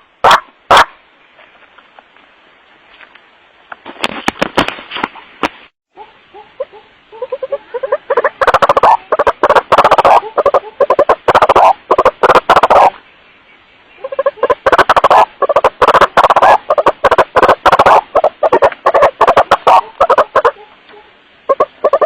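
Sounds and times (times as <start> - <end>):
waterhen croaking call: 6.0 - 13.0, 13.8 - 22.0.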